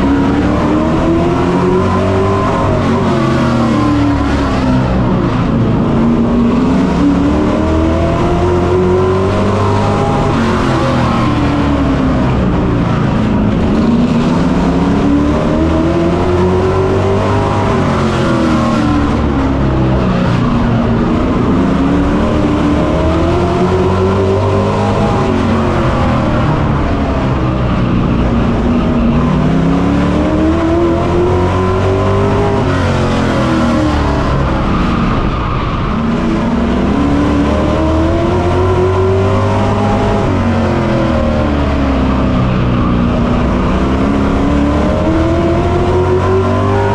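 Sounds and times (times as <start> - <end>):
race truck engine revving: 0.0 - 46.9.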